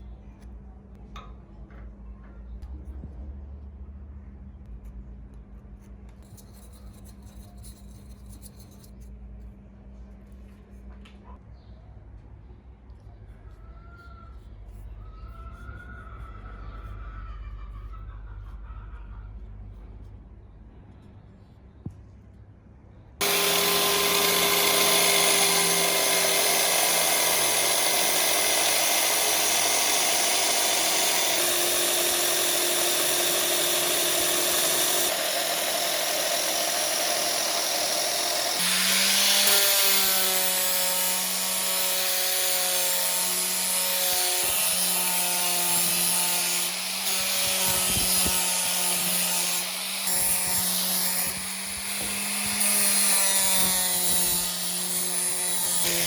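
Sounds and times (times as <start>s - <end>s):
electric power tool running: 23.2s - 56.0s.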